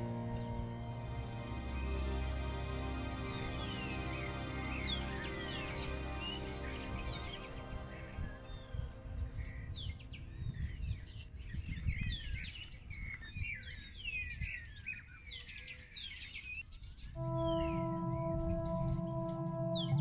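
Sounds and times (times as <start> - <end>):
ringing musical tone: 0.0 - 10.1, 17.2 - 20.0.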